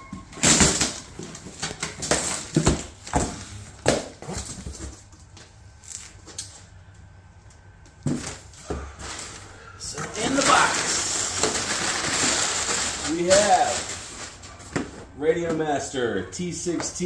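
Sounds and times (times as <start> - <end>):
packaging rustling and knocking: 0.1 - 5.2, 8.0 - 15.6.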